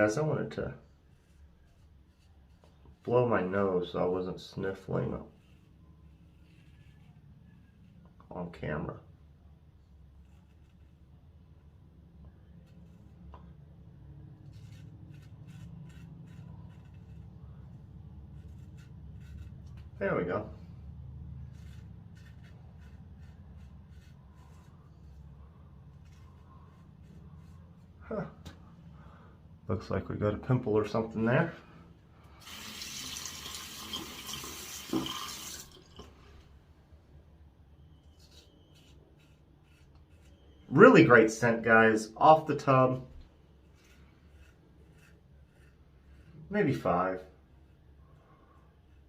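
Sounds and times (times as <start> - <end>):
shaving brush strokes in lather: 0.0 - 8.2, 10.1 - 28.0, 32.4 - 35.7, 37.9 - 49.0
low steady hum: 0.1 - 49.0
tap water running into sink: 32.4 - 36.1.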